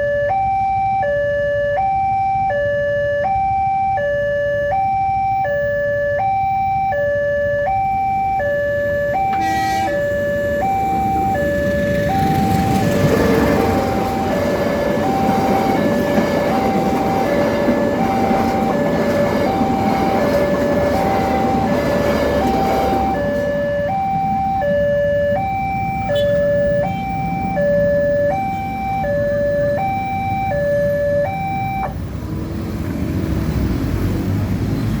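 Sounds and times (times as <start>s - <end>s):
level crossing warning alarm: 0.0s - 32.3s
passing train rumble: 8.2s - 35.0s.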